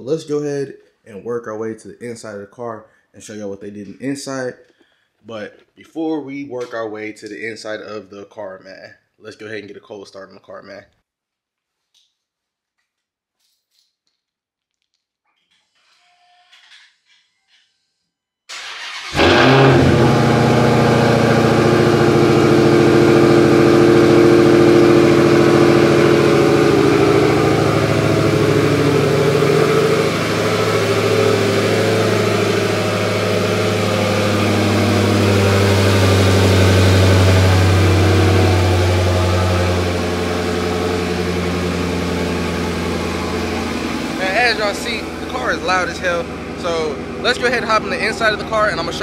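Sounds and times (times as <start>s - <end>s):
car engine flaring and idling: 18.5s - 49.0s.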